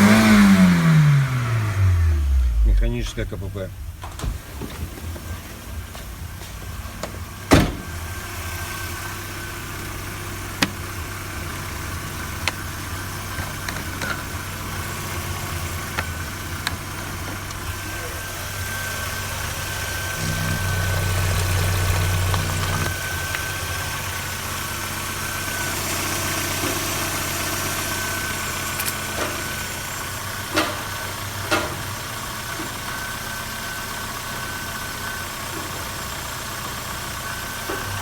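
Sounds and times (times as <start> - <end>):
high whine: 0.0 - 30.0
car engine idling: 0.0 - 38.0.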